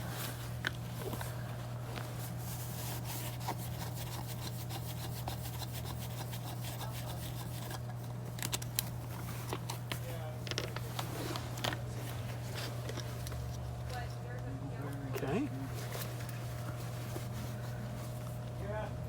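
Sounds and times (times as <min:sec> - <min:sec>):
steady low hum: 0:00.0 - 0:19.0
hands rubbing fabric and valve: 0:01.9 - 0:07.8.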